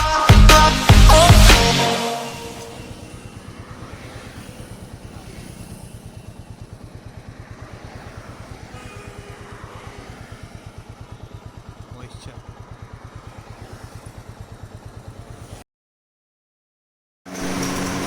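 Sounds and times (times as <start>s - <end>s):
motorcycle engine idling: 2.7s - 15.6s.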